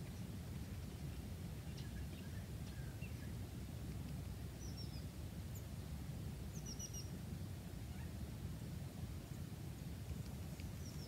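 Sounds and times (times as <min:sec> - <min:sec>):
small bird chirps: 0:04.6 - 0:05.7, 0:06.5 - 0:07.1, 0:10.6 - 0:11.0.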